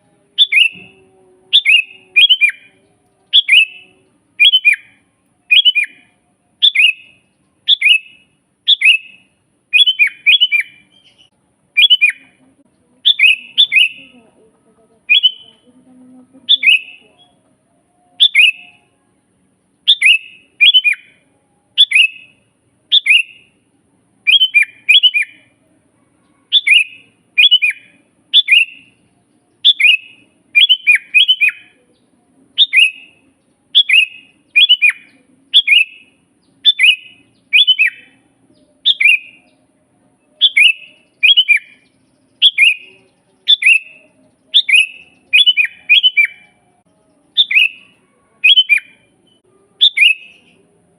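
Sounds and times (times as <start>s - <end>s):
bird singing falling notes: 0.3s - 12.2s, 13.0s - 14.1s, 40.4s - 46.6s.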